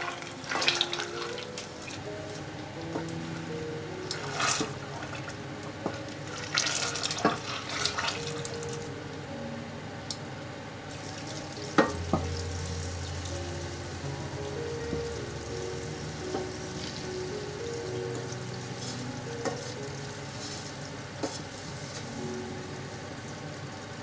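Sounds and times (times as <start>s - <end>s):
steady low hum: 11.0s - 20.7s.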